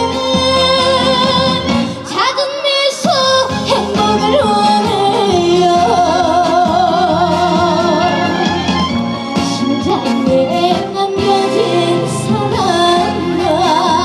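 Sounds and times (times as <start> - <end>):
backing band playing: 5.9 - 11.5.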